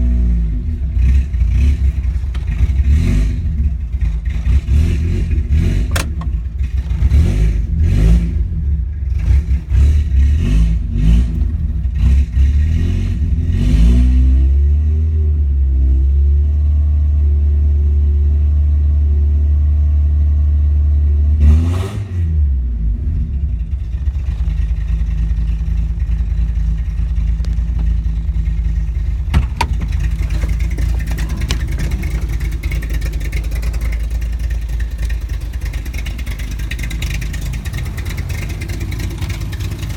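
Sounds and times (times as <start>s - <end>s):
car engine idling: 0.0s - 13.5s, 22.6s - 39.9s
car engine revving: 0.0s - 16.1s, 21.2s - 39.9s.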